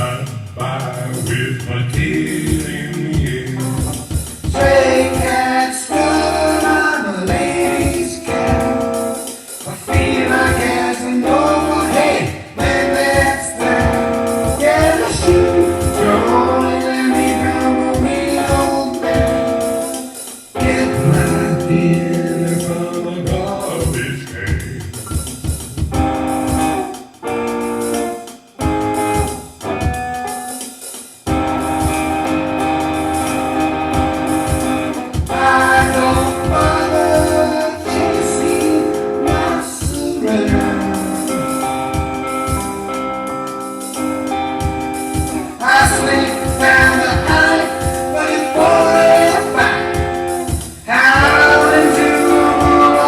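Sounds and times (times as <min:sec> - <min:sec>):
steady bass beat: 0:00.0 - 0:08.9, 0:09.6 - 0:20.0, 0:20.6 - 0:26.8, 0:31.3 - 0:43.2
person singing: 0:00.0 - 0:25.0, 0:33.2 - 0:43.0, 0:45.1 - 0:53.0
jazzy instrumental music: 0:01.0 - 0:53.0.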